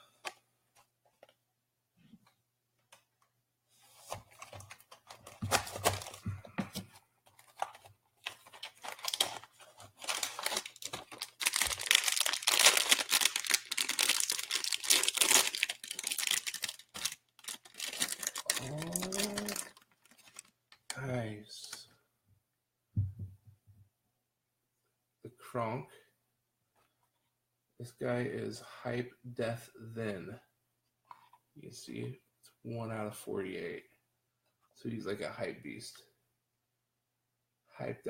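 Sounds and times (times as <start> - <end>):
packaging crinkling and tearing: 4.3 - 6.2, 7.3 - 21.0.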